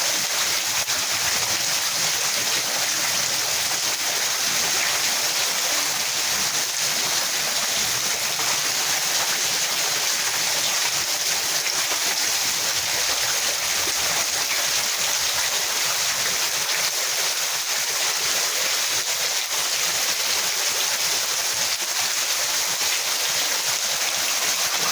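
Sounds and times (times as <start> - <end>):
storm water rushing: 24.0 - 24.9.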